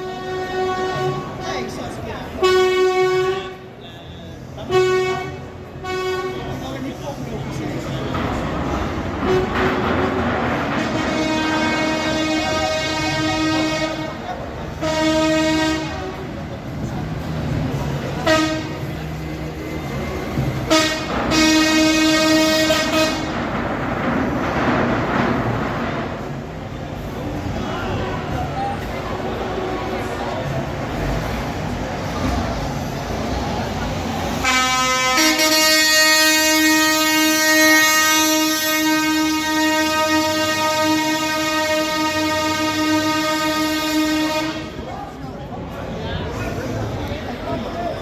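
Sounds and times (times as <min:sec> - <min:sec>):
truck air horn blasts: 0:00.0 - 0:03.8, 0:04.6 - 0:06.6, 0:08.9 - 0:16.4, 0:17.8 - 0:19.3, 0:20.1 - 0:23.6, 0:34.2 - 0:44.9.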